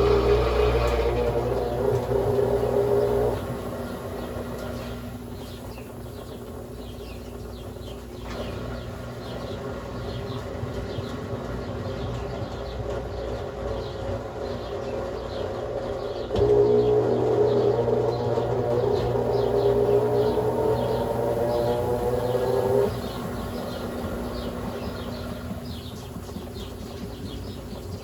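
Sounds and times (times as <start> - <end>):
steady low hum: 0.0 - 28.0
washing machine motor: 0.0 - 28.0.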